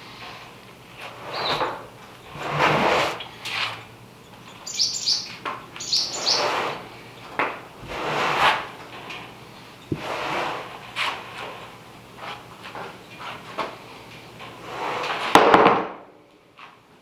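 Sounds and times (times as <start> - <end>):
scraping sliding swishes: 1.0 - 3.8, 6.1 - 6.9, 7.8 - 8.8
bird chirping: 1.3 - 1.6, 4.2 - 7.3.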